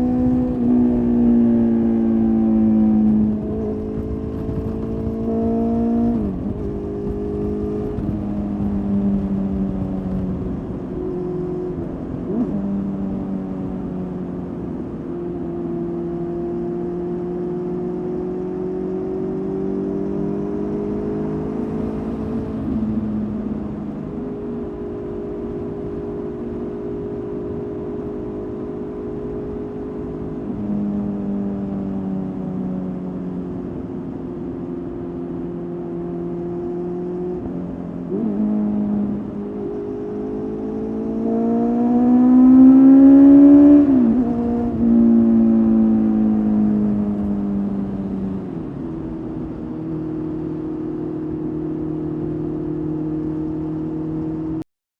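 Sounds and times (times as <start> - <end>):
motorcycle engine running: 2.0 - 11.1.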